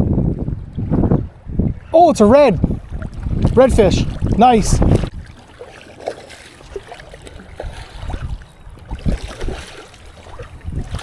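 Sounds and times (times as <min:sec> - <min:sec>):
small water splashes: 0:02.6 - 0:11.0
water trickling and dripping: 0:02.7 - 0:11.0.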